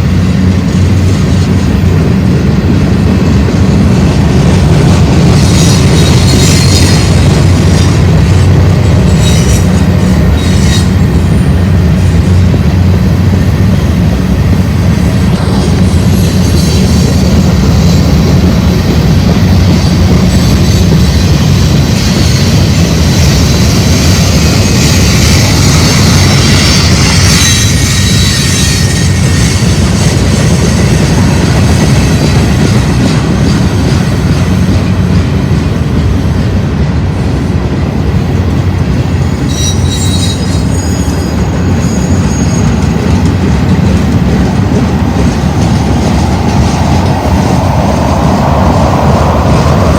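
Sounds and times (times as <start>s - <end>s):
train wheels rumbling on rail: 0.0s - 49.9s
wheel squeal: 5.1s - 12.5s, 15.4s - 18.4s, 20.2s - 34.0s, 39.2s - 49.9s.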